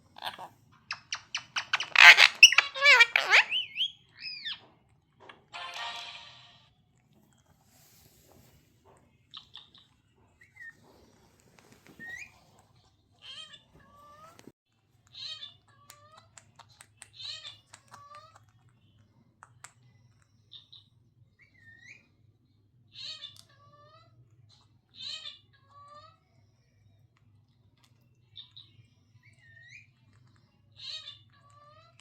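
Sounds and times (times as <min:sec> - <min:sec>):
parrot calling: 0:00.1 - 0:04.7.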